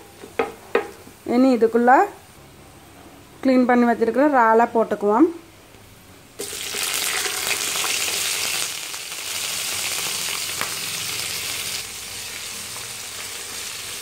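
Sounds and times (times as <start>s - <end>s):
prawns sizzling in hot oil: 6.4s - 14.0s.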